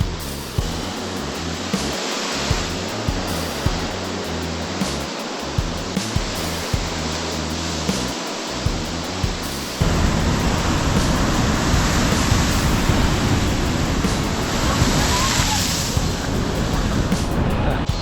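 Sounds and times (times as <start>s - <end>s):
faint background music: 0.0s - 18.0s
wind rumbling on microphone: 0.0s - 18.0s
roar of breaking waves: 9.8s - 17.8s.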